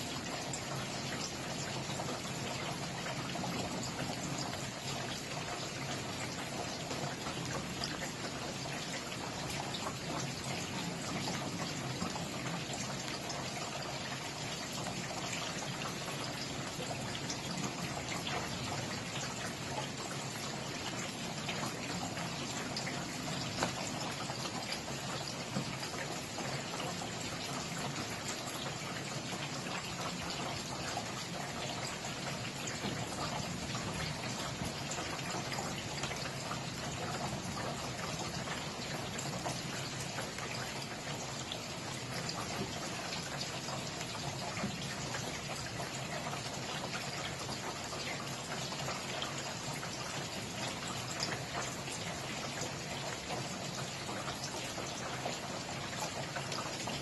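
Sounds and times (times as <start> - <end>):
steady rain hissing: 0.0 - 57.0.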